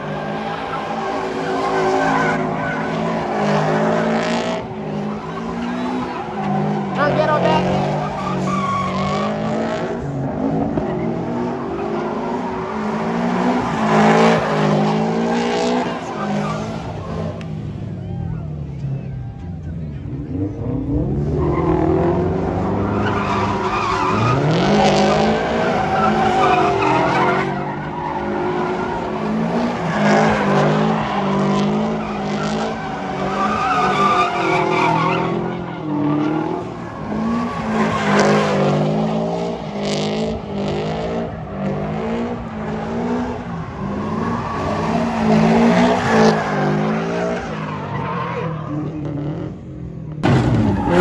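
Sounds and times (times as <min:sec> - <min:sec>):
tyres squealing: 0:00.0 - 0:09.6, 0:22.7 - 0:39.0
car engine revving: 0:00.0 - 0:51.0.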